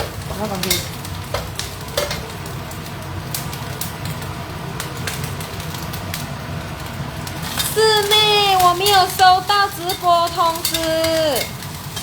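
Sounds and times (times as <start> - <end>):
ginger sizzling in hot oil: 0.0 - 12.0
spatula clicking against pan: 9.9 - 11.7.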